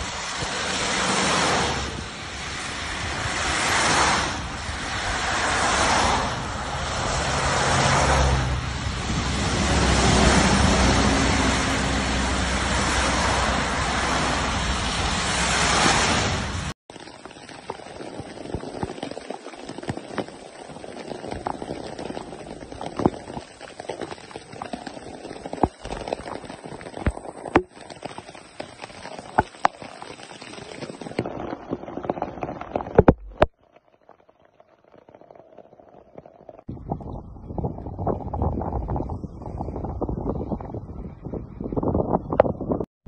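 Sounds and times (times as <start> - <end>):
traffic swishing on wet road: 0.0 - 33.2
heavy rain: 0.0 - 37.4
large raindrops tapping: 15.4 - 40.2.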